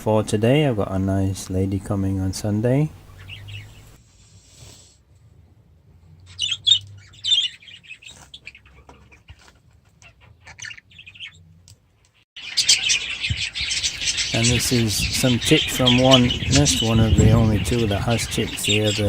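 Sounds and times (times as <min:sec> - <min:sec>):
budgerigars chirping: 0:02.8 - 0:04.0, 0:06.3 - 0:08.8, 0:10.1 - 0:11.4, 0:12.4 - 0:19.0.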